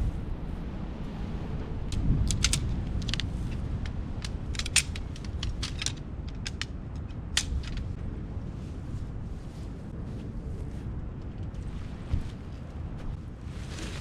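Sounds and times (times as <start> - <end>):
steady low rumble: 0.0 - 14.0
small hard objects clicking: 1.9 - 7.8.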